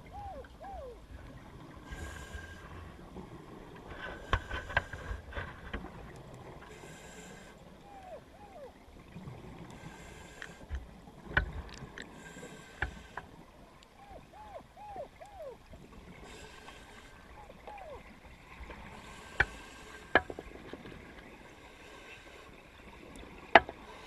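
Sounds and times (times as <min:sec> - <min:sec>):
diver breathing through regulator: 0:06.7 - 0:07.6, 0:09.8 - 0:10.7, 0:12.1 - 0:13.3.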